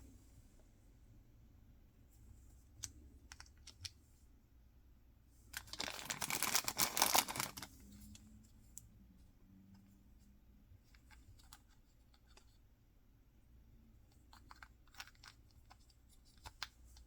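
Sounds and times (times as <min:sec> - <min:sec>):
packaging crackling rustle: 0:05.6 - 0:07.8.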